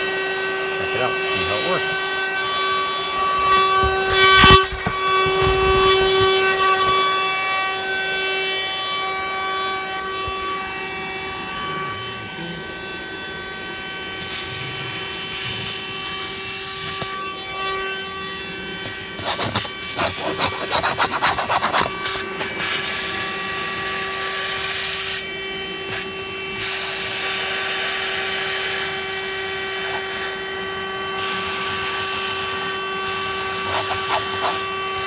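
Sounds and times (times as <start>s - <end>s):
vacuum motor whining: 0.6s - 8.2s, 26.0s - 35.0s
scraping and rattling: 3.2s - 7.0s, 19.0s - 22.6s, 33.5s - 34.8s.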